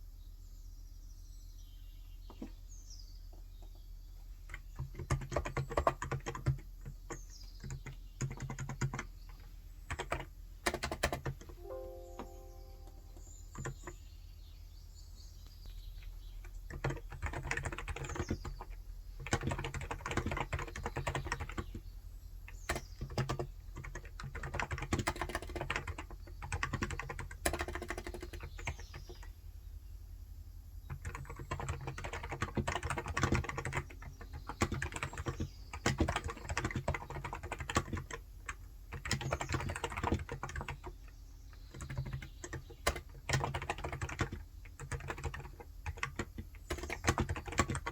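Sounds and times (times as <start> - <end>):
soft rapid keyboard typing: 2.3 - 2.6, 3.3 - 14.1, 15.6 - 29.4, 30.8 - 47.9
faint bird chirps: 11.6 - 18.7.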